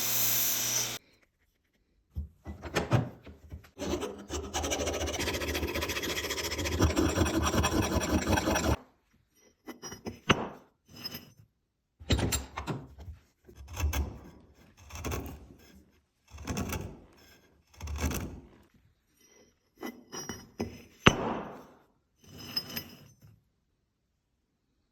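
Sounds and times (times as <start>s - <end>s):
rasping filing strokes on metal: 3.7s - 8.8s.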